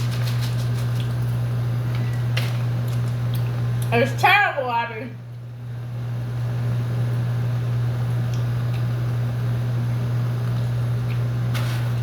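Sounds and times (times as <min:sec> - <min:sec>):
low electric hum: 0:00.0 - 0:12.0.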